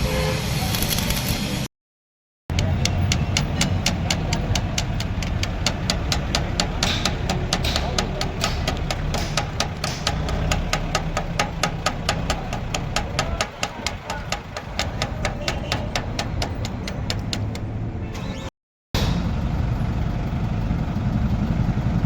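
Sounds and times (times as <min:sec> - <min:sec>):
rapid regular knocking: 0:02.5 - 0:17.8.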